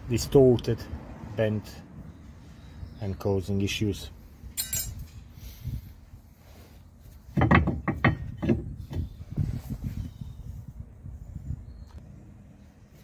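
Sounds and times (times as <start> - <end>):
metallic clinks and scrapes: 4.5 - 5.5.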